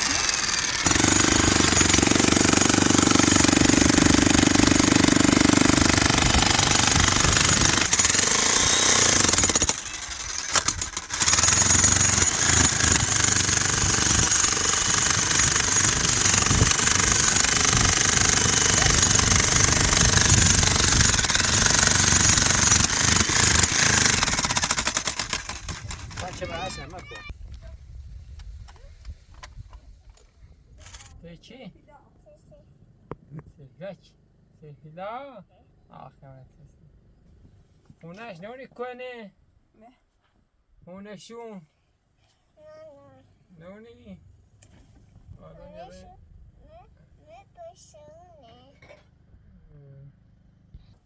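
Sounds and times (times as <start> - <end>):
small power tool running: 0.0 - 27.3.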